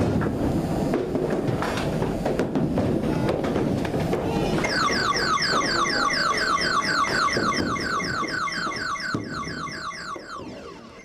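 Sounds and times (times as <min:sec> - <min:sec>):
arcade hubbub: 0:02.6 - 0:11.0
electronic falling beeps: 0:04.6 - 0:11.0.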